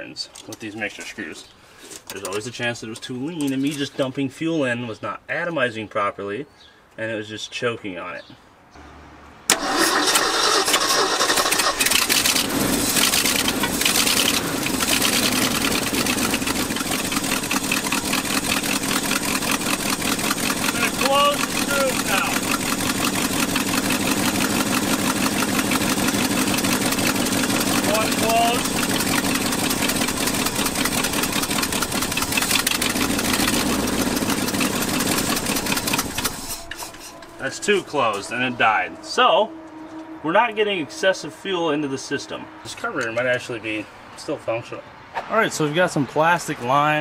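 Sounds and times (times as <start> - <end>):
engine idling: 9.5 - 40.2.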